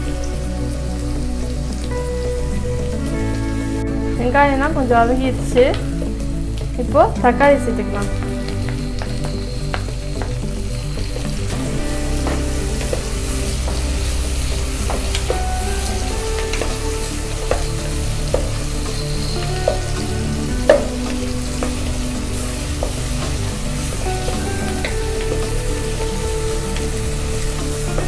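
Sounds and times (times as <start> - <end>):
vegetables sizzling in hot oil: 0.0 - 28.0.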